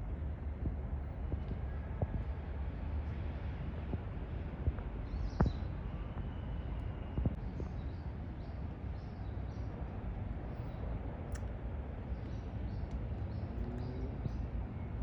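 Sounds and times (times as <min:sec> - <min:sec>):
steady low rumble: 0:00.0 - 0:15.0
small birds chirping: 0:05.0 - 0:06.3, 0:12.1 - 0:15.0.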